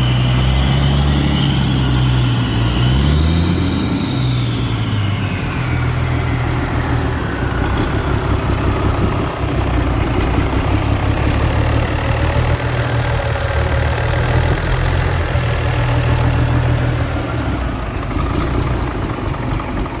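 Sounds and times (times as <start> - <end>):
falling whistle: 0.0 - 9.0
diesel engine running: 0.0 - 20.0.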